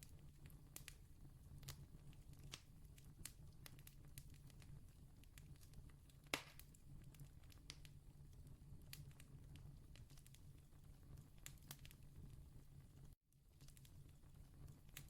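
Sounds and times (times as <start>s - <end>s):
distant campfire crackling: 0.0s - 15.0s.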